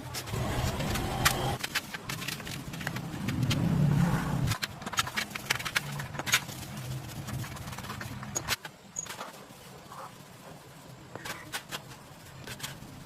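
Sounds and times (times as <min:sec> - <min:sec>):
sharp clicks and knocks: 0:04.4 - 0:09.4.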